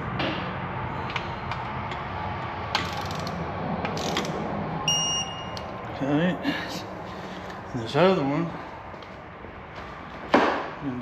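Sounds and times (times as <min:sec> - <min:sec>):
short electronic beep: 0:04.9 - 0:05.6.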